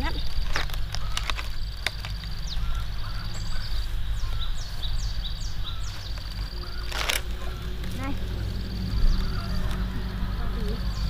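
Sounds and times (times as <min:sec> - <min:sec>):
birds chirping: 0:00.0 - 0:11.0
high insect-like drone: 0:00.0 - 0:11.0
low rumble: 0:00.0 - 0:11.0
sharp clicks: 0:06.0 - 0:08.1.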